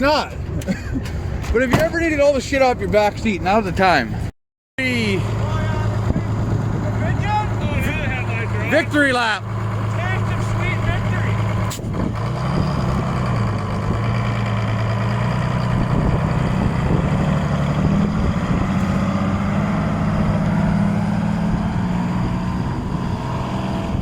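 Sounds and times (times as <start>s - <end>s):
truck diesel engine running: 4.8s - 24.0s.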